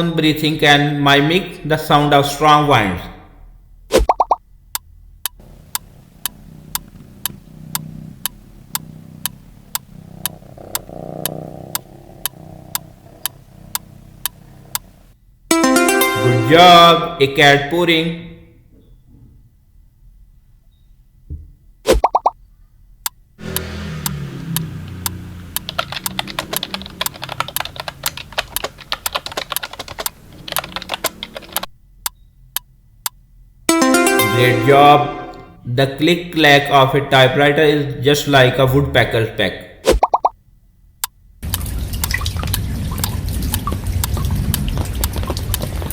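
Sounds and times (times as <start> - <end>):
clock ticking: 4.1 - 14.9, 23.1 - 35.5
cat purring: 5.4 - 15.2, 23.4 - 31.7
typewriter keys clacking: 25.6 - 31.7.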